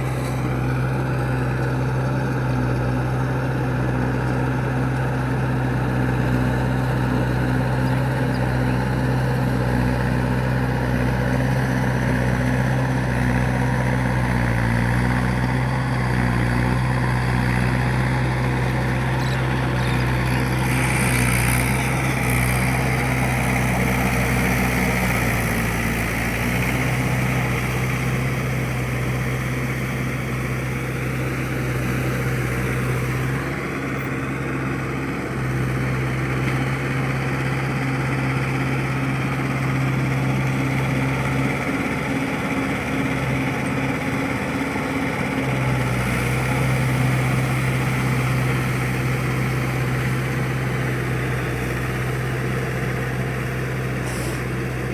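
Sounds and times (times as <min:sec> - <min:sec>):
tractor diesel engine running: 0:00.0 - 0:54.9
hiss: 0:54.0 - 0:54.5.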